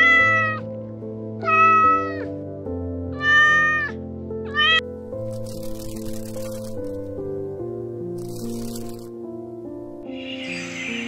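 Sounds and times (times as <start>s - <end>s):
cat meowing: 0.0s - 0.7s, 1.4s - 2.3s, 3.1s - 4.8s
background music: 0.0s - 11.0s.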